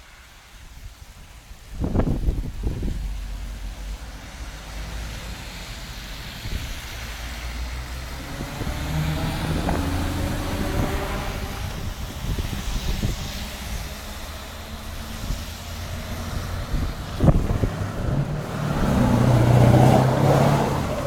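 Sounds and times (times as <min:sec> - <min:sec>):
diesel truck engine running: 0:02.0 - 0:21.0.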